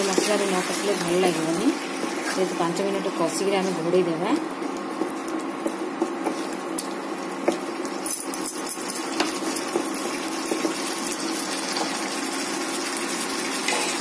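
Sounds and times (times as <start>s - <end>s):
chicken sizzling in pan: 9.0s - 14.0s.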